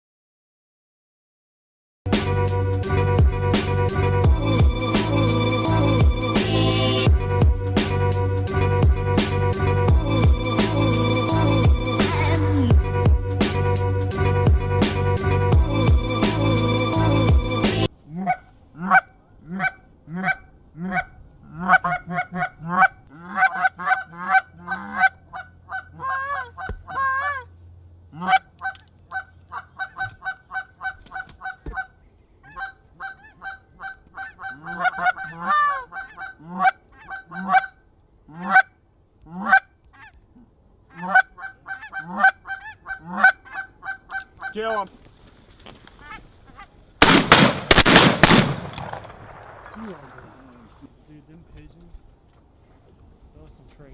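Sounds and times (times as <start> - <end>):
geese honking: 8.5 - 27.5, 28.1 - 40.2, 40.9 - 44.9.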